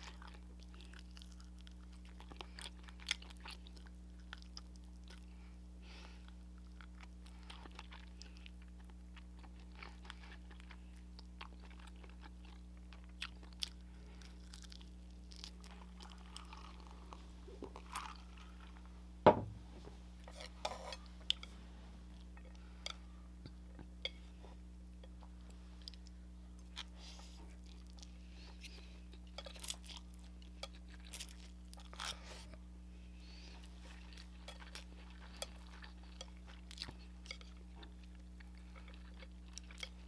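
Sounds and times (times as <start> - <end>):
crunchy chewing: 6.2 - 18.9, 33.2 - 40.0
sharp knock: 19.3 - 19.6.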